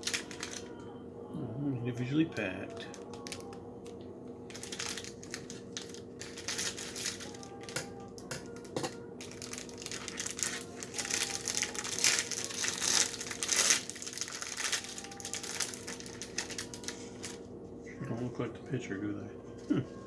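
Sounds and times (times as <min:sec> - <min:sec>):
snack wrapper crinkling and tearing: 0:00.0 - 0:00.8, 0:02.7 - 0:17.4.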